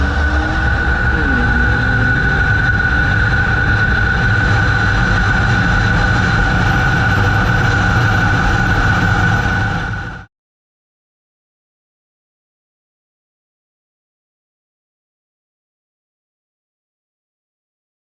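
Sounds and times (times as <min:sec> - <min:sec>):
constant high tone: 0:00.0 - 0:10.3
vehicle rumble: 0:00.0 - 0:10.3.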